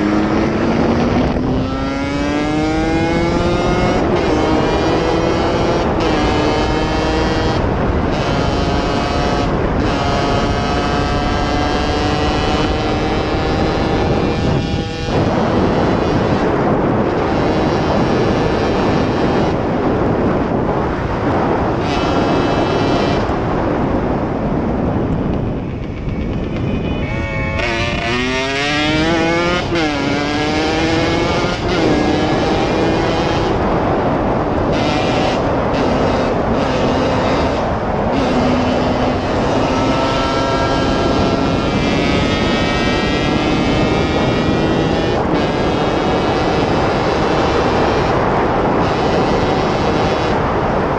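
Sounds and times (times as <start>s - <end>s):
motorcycle engine revving: 0.0s - 26.8s, 27.4s - 50.9s
wind and road noise: 0.0s - 50.9s.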